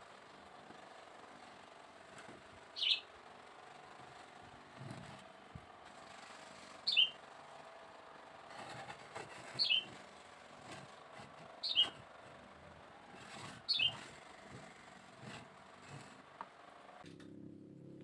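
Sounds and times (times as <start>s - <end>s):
bird chirping: 2.8s - 3.1s, 6.9s - 7.2s, 9.6s - 9.9s, 11.6s - 12.0s, 13.7s - 14.0s.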